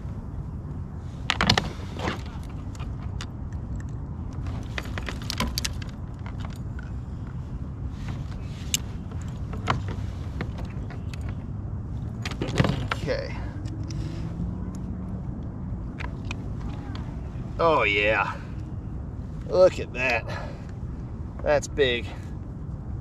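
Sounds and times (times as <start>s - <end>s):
steady low rumble: 0.0s - 23.0s
fishing gear clicking and jingling: 1.3s - 7.4s.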